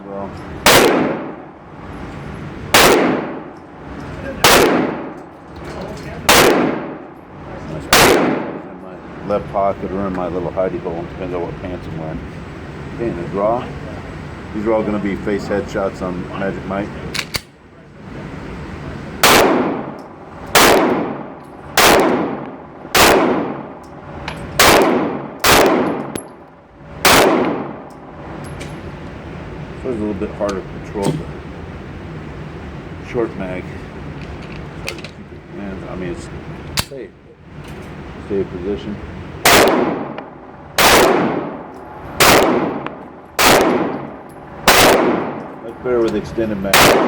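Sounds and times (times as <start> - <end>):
gunshots with echo: 0.6 - 1.5, 2.7 - 3.5, 4.4 - 5.2, 6.3 - 7.1, 7.9 - 8.8, 19.2 - 23.8, 24.6 - 26.2, 27.0 - 27.9, 39.4 - 45.6, 46.7 - 47.0
pistol shots: 0.6 - 1.5, 2.7 - 3.6, 4.4 - 5.2, 6.3 - 7.1, 7.9 - 8.7, 19.2 - 23.8, 24.4 - 26.4, 27.0 - 27.9, 39.4 - 45.6, 46.7 - 47.0.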